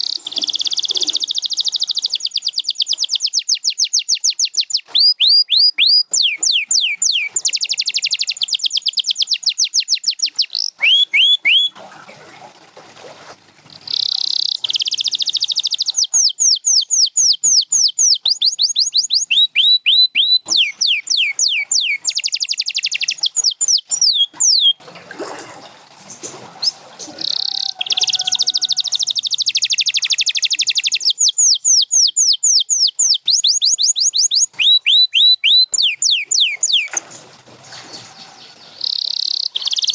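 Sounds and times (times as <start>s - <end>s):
canary singing: 0.0s - 11.8s, 13.7s - 24.8s, 26.6s - 39.9s.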